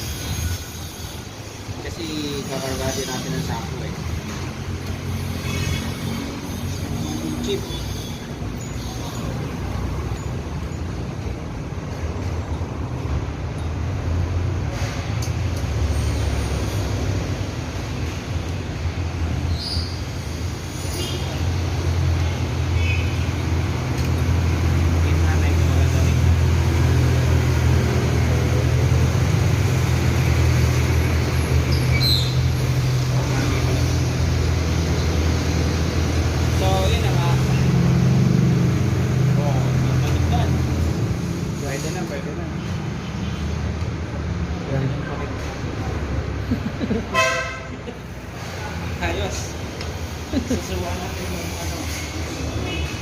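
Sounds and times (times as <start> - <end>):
road vehicle rumbling: 0.0 - 53.0.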